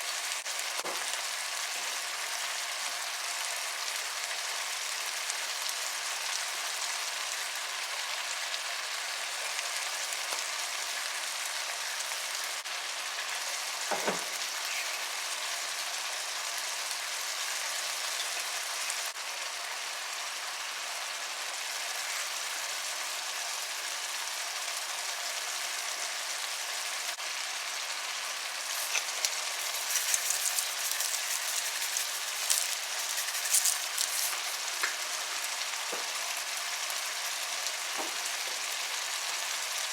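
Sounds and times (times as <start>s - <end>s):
stew sizzling in hot oil: 0.0s - 39.9s
oil crackling and spattering: 28.6s - 36.1s.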